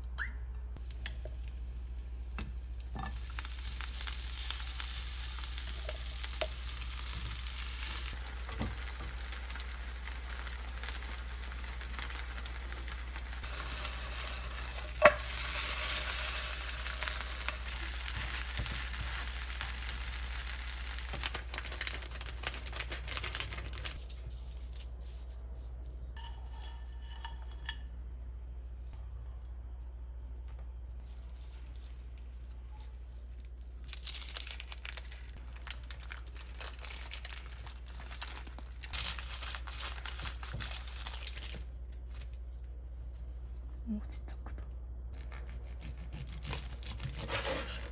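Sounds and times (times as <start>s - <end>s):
food sizzling in a pan: 0.8s - 22.4s
steady low hum: 23.6s - 34.0s.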